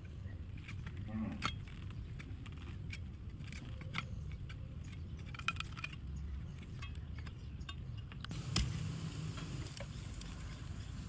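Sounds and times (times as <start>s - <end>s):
low steady rumble: 8.3s - 11.0s.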